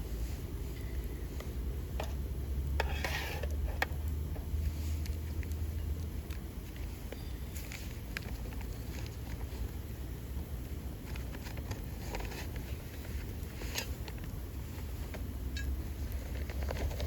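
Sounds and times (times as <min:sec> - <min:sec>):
bonfire crackling and popping: 0:03.5 - 0:17.0.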